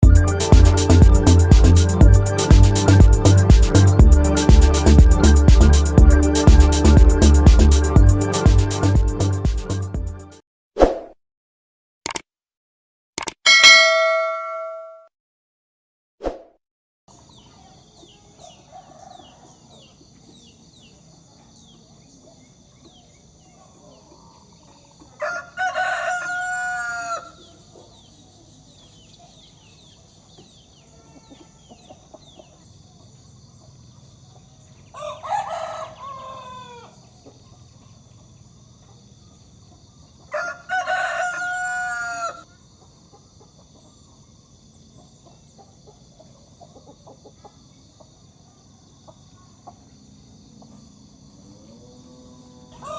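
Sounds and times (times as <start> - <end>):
rooster crowing: 18.4 - 19.9, 25.1 - 27.6, 34.8 - 37.1, 40.3 - 42.5, 51.4 - 52.9.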